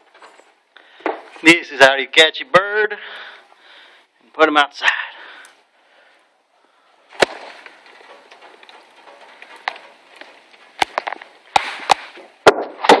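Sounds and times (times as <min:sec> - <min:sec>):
rustling and handling noise: 0:07.1 - 0:12.4.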